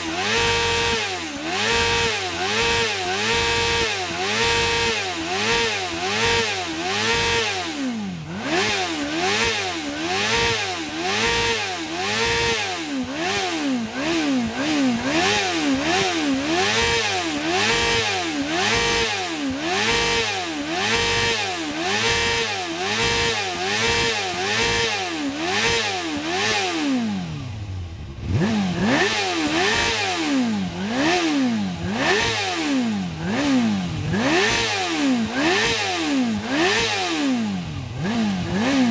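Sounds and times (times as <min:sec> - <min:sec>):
motorcycle engine revving hard: 0:00.0 - 0:38.9.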